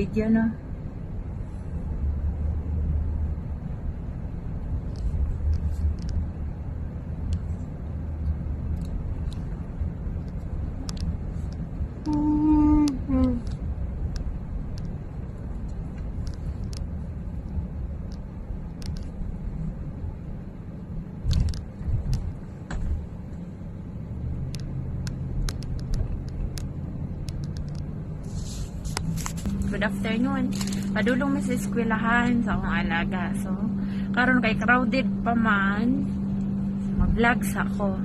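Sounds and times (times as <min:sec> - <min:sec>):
vehicle rumble: 0:00.0 - 0:38.0.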